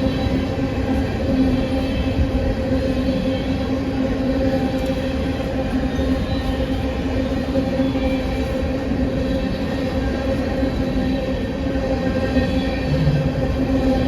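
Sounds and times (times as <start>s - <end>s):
train rumbling: 0.0s - 14.0s
engine drone: 12.6s - 14.0s.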